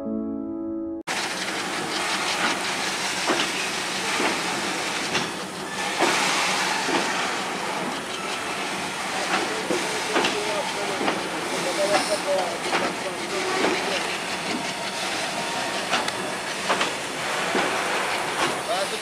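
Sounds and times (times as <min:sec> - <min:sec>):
piano music: 0:00.0 - 0:01.1
freight train rumbling: 0:01.1 - 0:19.0
wheels clanking over rail joints: 0:01.1 - 0:19.0.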